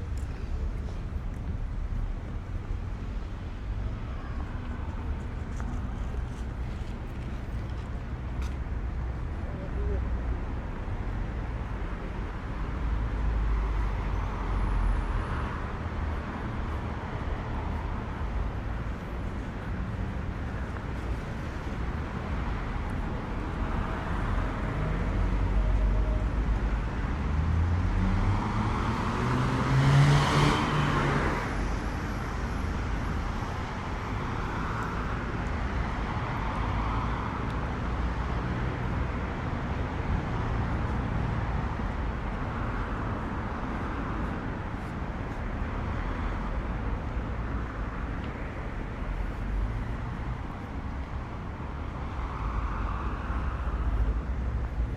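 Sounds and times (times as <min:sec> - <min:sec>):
steady traffic noise: 0:00.0 - 0:54.9
car accelerating past: 0:27.9 - 0:31.5.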